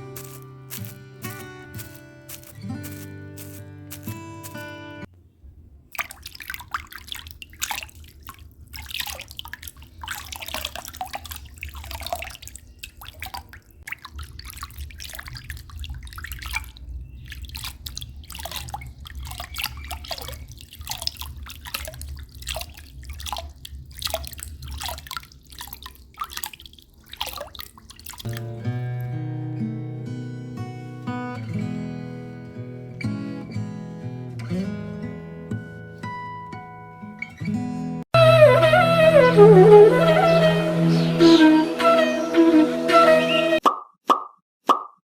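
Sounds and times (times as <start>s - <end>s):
water dripping and splashing: 0.0s - 4.7s, 5.9s - 28.6s.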